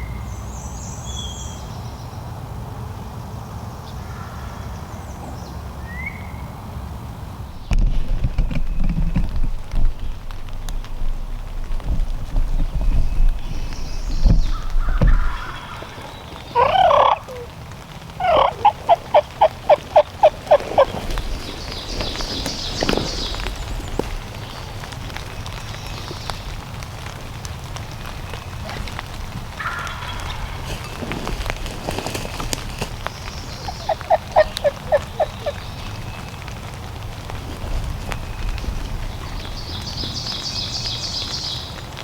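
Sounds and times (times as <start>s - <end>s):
turkey yelps: 14.8s - 17.6s, 18.2s - 21.5s, 33.5s - 35.9s
turkey gobbling: 14.8s - 23.4s, 33.1s - 36.2s.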